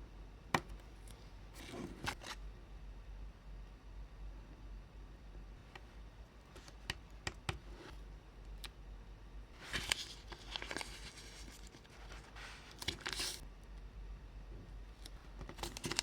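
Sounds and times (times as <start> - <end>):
rustling or crinkling: 9.6 - 13.4, 15.0 - 16.0.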